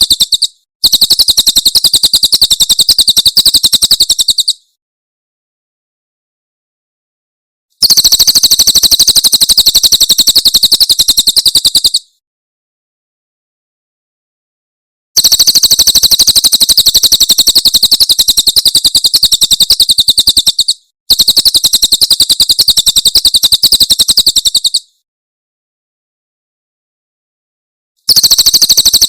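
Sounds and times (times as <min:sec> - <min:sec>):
bird rapid high sharp notes: 0:00.0 - 0:04.6, 0:28.1 - 0:29.0.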